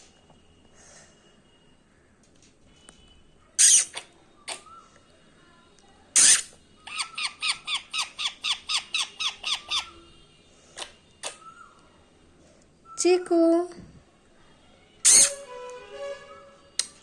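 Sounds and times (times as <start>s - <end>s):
parrot screeching: 3.6s - 4.7s, 6.2s - 10.0s, 15.0s - 15.5s
parrot squawks: 3.6s - 4.8s, 6.2s - 10.0s, 10.8s - 11.6s, 15.0s - 15.5s.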